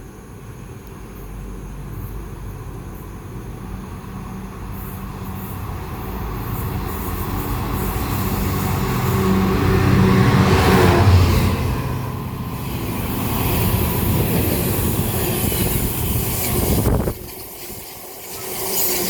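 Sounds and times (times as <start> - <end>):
diesel locomotive approaching: 0.0 - 19.0.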